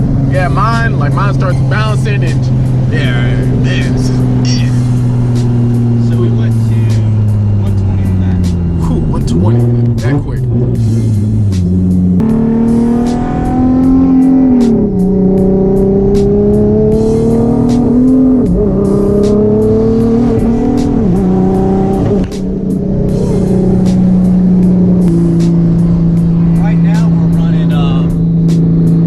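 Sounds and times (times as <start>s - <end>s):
car engine revving: 0.0s - 29.0s
music with steady beat: 9.8s - 26.3s, 28.1s - 29.0s.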